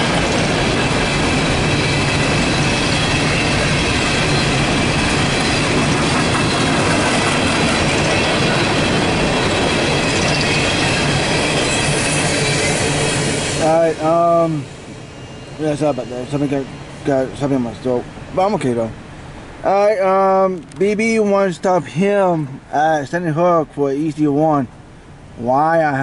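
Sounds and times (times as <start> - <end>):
high wheel squeal: 0.0 - 18.1
train wheels rolling on rails: 0.0 - 23.2.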